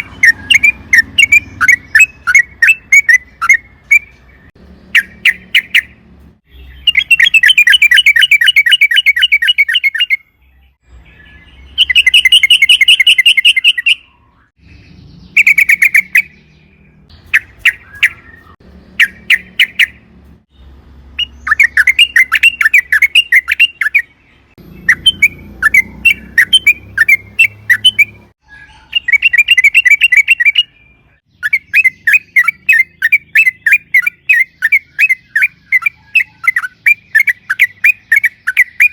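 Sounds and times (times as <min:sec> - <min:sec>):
bulbul chattering trills: 0:00.0 - 0:10.2, 0:11.2 - 0:38.9.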